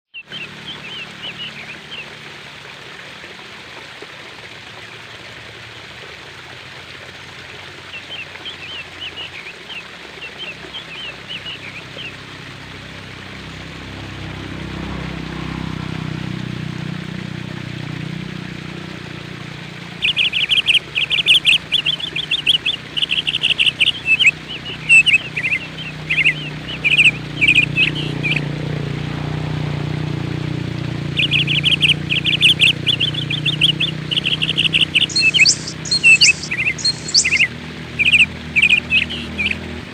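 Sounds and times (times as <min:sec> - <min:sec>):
small birds chirping: 0:07.9 - 0:12.2, 0:19.9 - 0:28.6, 0:31.0 - 0:39.8
low background rumble: 0:19.3 - 0:39.9.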